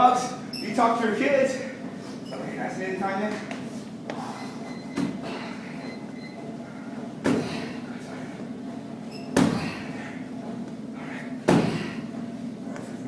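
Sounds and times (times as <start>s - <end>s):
kicks smacking on pads: 7.2s - 7.6s, 9.3s - 9.8s, 11.4s - 12.0s.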